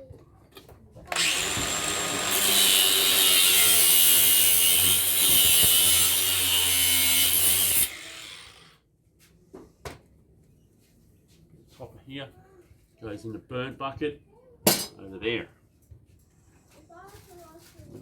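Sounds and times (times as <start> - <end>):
power tool cutting metal: 1.1 - 8.8.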